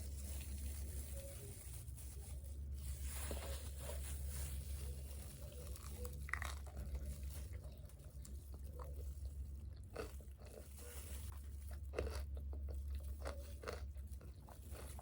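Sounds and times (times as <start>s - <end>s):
paper crinkling and tearing: 0.0s - 8.6s
crunching and chewing food: 0.0s - 15.0s.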